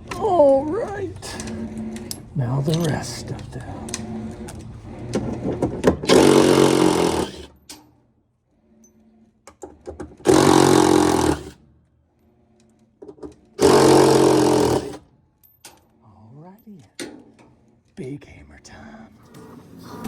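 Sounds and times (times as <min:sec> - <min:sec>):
cordless drill running: 0:03.9 - 0:07.6, 0:10.2 - 0:11.6, 0:13.6 - 0:15.0.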